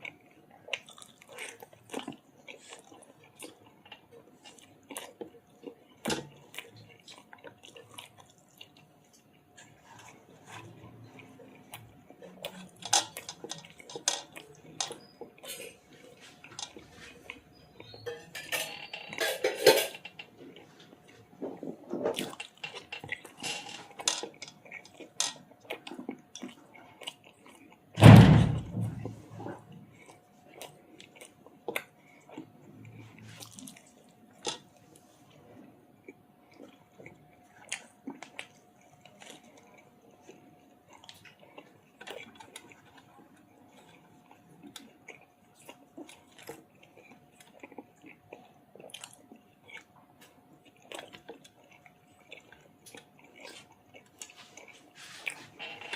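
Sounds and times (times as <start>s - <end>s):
chewing with wet smacks: 0.0s - 18.0s, 20.1s - 28.0s, 29.1s - 55.9s
loud thump: 28.0s - 29.1s.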